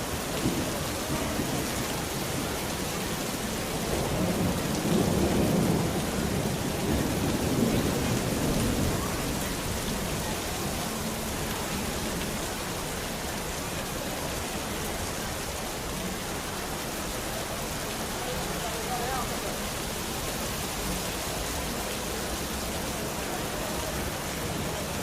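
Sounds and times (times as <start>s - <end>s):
steady rain falling: 0.0s - 25.0s
thunder rolling: 3.8s - 10.7s.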